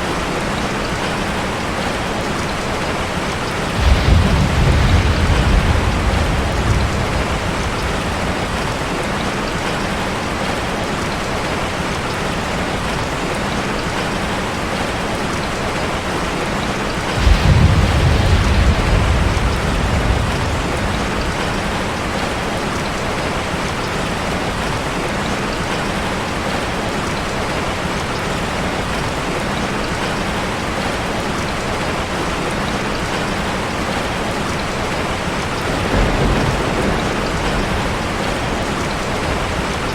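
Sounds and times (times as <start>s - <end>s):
heavy rain on a car: 0.0s - 39.9s
thunder rumbling: 3.4s - 10.7s, 16.9s - 24.7s, 34.9s - 39.9s
thunderclap: 3.7s - 10.0s, 17.0s - 23.5s, 35.5s - 39.9s.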